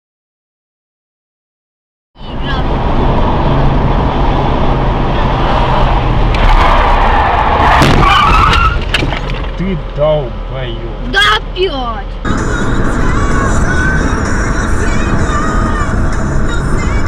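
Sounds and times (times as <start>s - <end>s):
car road and engine noise: 2.2s - 17.0s.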